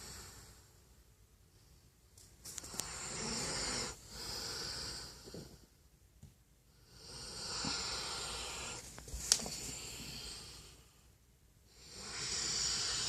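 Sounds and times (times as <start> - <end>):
dog snoring: 2.7 - 5.6, 6.8 - 8.8, 11.7 - 13.0.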